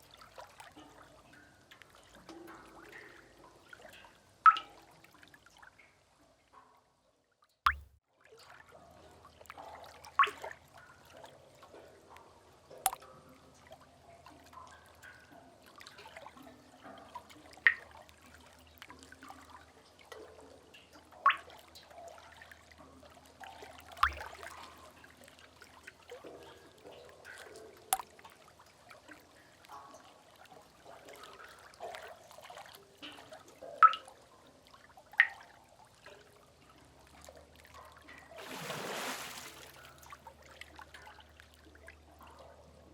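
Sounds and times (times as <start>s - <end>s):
faint trickling and gurgling water: 0.0s - 42.9s
water drips falling: 0.6s - 5.2s, 7.7s - 8.0s, 9.5s - 12.2s, 12.9s - 13.1s, 14.3s - 34.3s, 35.1s - 35.6s.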